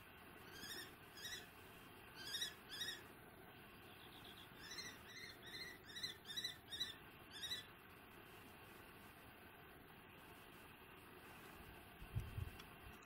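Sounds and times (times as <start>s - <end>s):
bird of prey calling: 0.4s - 1.5s, 2.1s - 3.1s, 3.8s - 7.7s.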